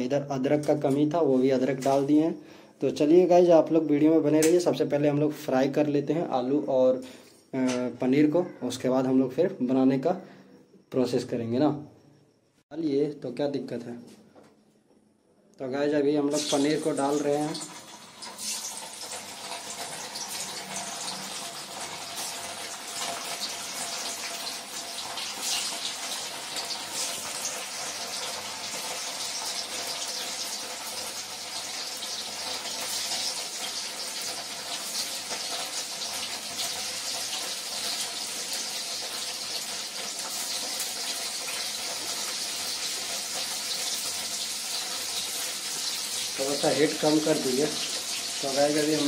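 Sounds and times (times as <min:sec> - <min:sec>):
cheese sizzling in hot oil: 0:16.2 - 0:49.0.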